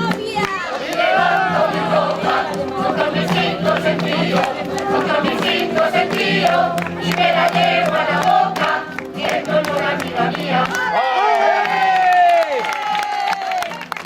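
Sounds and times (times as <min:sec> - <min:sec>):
choir singing in several voices: 0:00.7 - 0:10.9.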